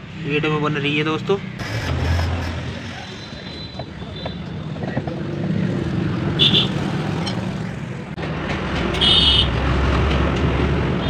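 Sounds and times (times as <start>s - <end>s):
road traffic rumble: 0.0s - 11.0s
vehicle horn beeps: 3.2s - 4.7s.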